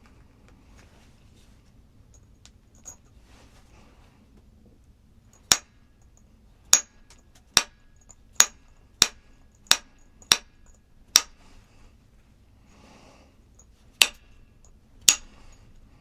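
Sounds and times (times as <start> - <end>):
sharp hard knocks: 8.4 - 11.4, 14.0 - 14.4.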